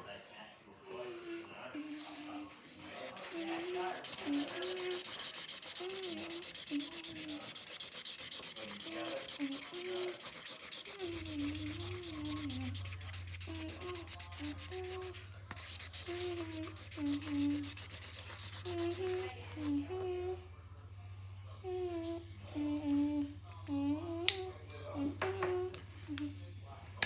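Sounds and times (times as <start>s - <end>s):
marker scratching on paper: 2.8s - 19.7s
person humming softly: 21.6s - 24.5s.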